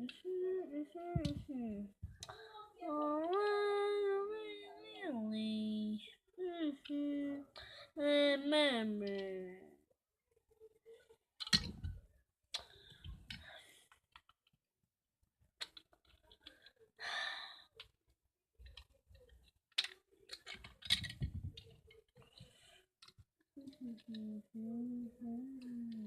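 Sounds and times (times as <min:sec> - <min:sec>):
plastic bricks clicking together: 0:11.4 - 0:14.4, 0:15.6 - 0:16.7, 0:18.6 - 0:22.3
breathy sigh: 0:17.0 - 0:17.7.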